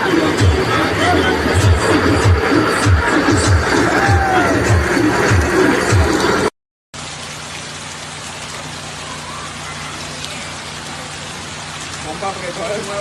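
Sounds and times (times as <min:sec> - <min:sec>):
background music with steady beat: 0:00.0 - 0:06.5
heavy rain hissing: 0:00.0 - 0:13.0.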